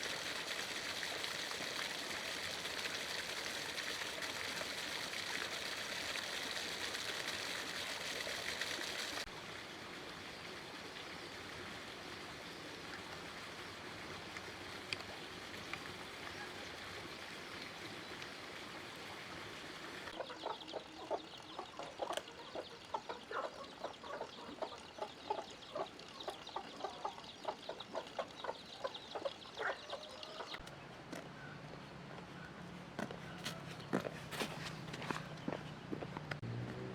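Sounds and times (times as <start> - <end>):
chickens clucking: 20.1 - 30.6.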